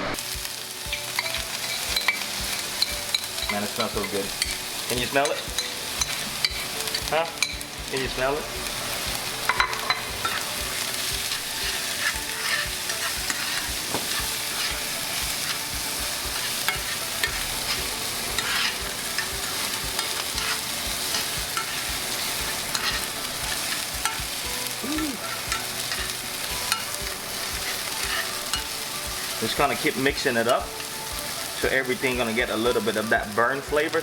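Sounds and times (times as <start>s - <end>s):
food sizzling in oil: 0.0s - 34.0s
utensil scraping a pan: 9.0s - 24.4s, 25.2s - 32.0s.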